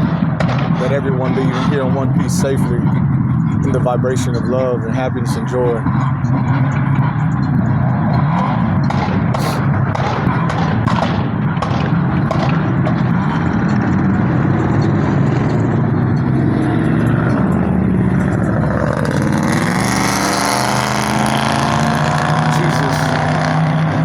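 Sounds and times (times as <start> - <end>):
car engines running loudly: 0.0 - 24.0
sharp cracks: 8.8 - 13.2.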